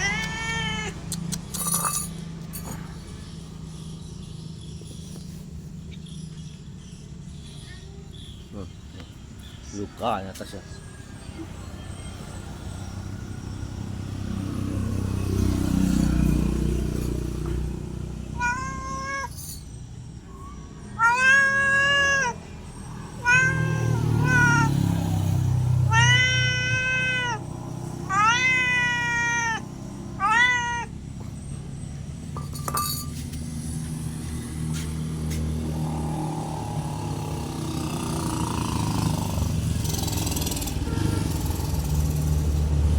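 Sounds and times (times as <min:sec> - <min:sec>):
cat meowing: 0:00.0 - 0:01.9, 0:18.2 - 0:19.6, 0:20.3 - 0:31.2.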